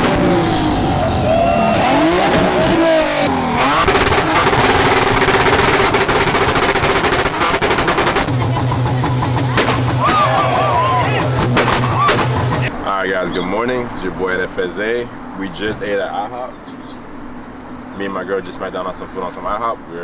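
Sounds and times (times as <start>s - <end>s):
car engines revving: 0.0s - 18.0s
rapid pops and bangs: 2.3s - 12.7s.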